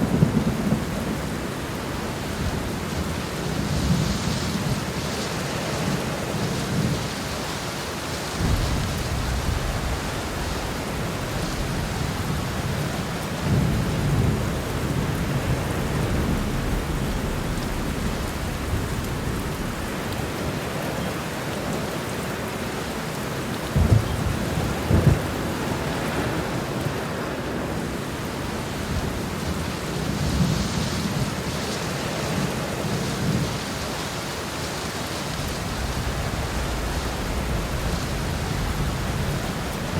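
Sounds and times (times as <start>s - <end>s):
thunder rumbling: 0.0s - 5.2s, 8.2s - 22.6s, 23.6s - 31.5s, 35.2s - 39.9s
heavy rain: 0.0s - 39.9s
sharp thunder cracks: 8.4s - 20.8s, 23.8s - 26.5s.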